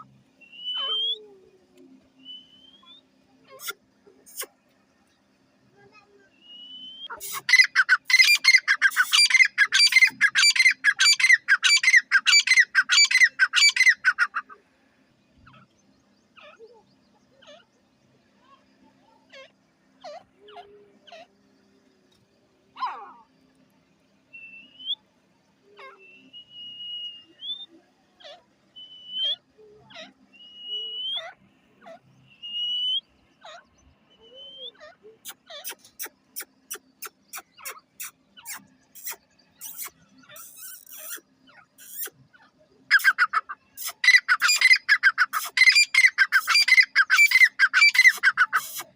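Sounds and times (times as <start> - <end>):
francolin calling: 0.0 - 1.5, 6.4 - 14.6, 24.3 - 48.9
rising bird whistles: 0.4 - 1.3, 2.2 - 3.1, 6.4 - 10.3, 24.3 - 25.0, 26.0 - 27.8, 28.8 - 29.4, 30.3 - 31.4, 32.3 - 33.1, 34.2 - 34.8.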